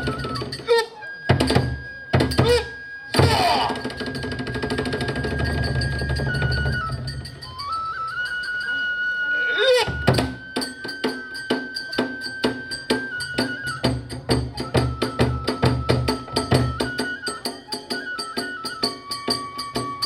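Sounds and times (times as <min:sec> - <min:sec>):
drum strokes: 0:00.0 - 0:07.5, 0:09.6 - 0:17.1
bamboo flute high notes: 0:00.0 - 0:20.0
metal hand cymbals ringing: 0:05.4 - 0:13.8, 0:17.3 - 0:20.0.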